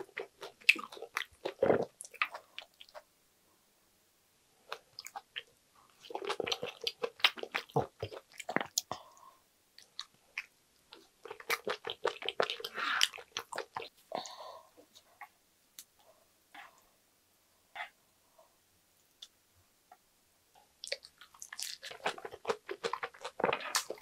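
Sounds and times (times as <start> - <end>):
wet chewing and smacking: 4.7 - 8.9, 9.8 - 13.9, 20.8 - 24.0.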